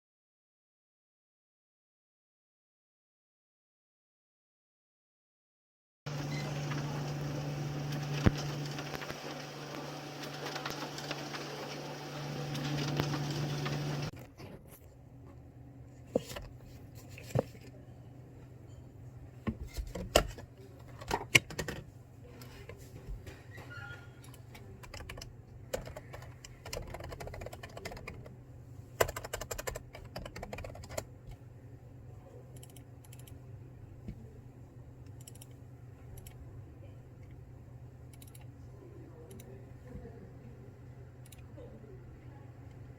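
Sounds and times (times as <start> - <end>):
keyboard typing clicks: 29.0 - 31.0, 35.1 - 36.4, 38.1 - 38.5.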